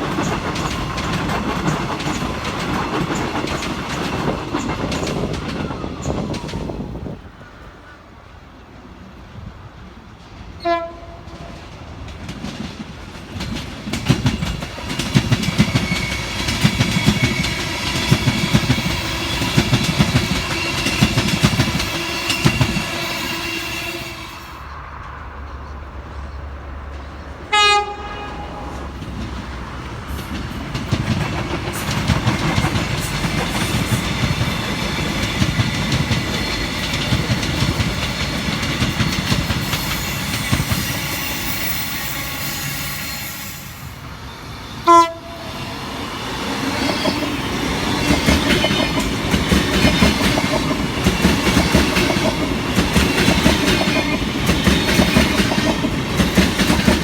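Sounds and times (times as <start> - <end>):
train wheels clattering: 0.0 - 7.2, 10.2 - 25.7, 26.8 - 43.8, 45.4 - 57.0
train horn blast: 10.6 - 11.6, 21.9 - 24.7, 27.4 - 29.0, 44.8 - 45.7.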